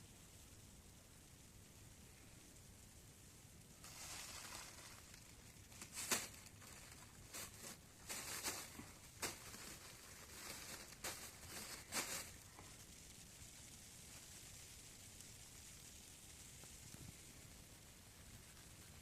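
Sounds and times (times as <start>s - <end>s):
rustling scraping sounds: 3.8s - 12.6s.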